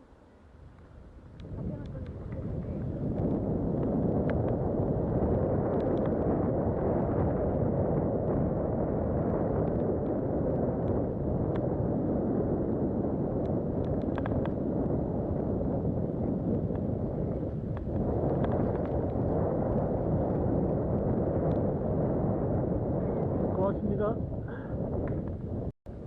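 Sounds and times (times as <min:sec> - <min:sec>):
wind buffeting microphone: 0:00.0 - 0:26.0
bike clicks and rattles: 0:13.4 - 0:14.6.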